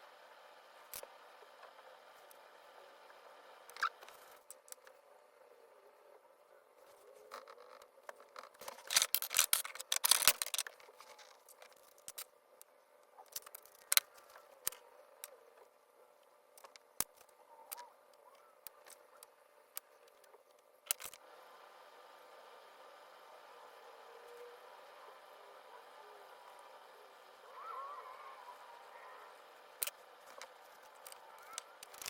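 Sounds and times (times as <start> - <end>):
scratchy crisp clicking: 7.3 - 15.4, 16.5 - 21.2, 29.7 - 32.0.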